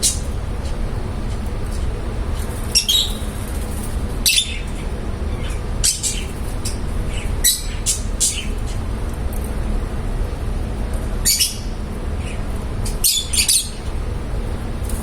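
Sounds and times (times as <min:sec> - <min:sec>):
steady low rumble: 0:00.0 - 0:13.0
lovebirds chirping: 0:02.6 - 0:03.4.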